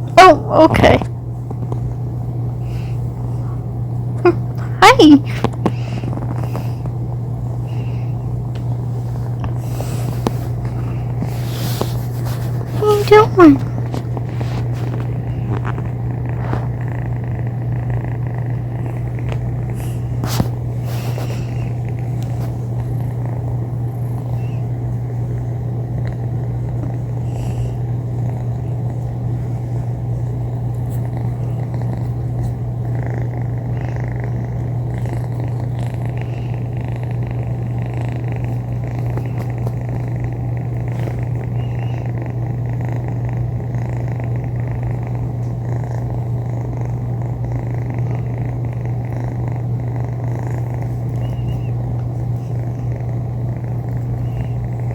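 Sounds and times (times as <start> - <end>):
kitten purring: 0.0 - 54.9.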